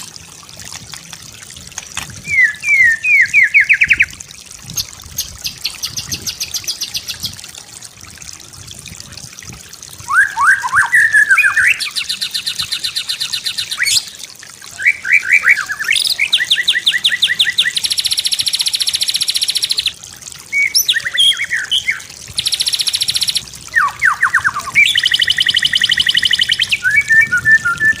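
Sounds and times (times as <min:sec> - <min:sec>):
bird singing trills and whistles: 0:02.2 - 0:04.2, 0:10.1 - 0:28.0.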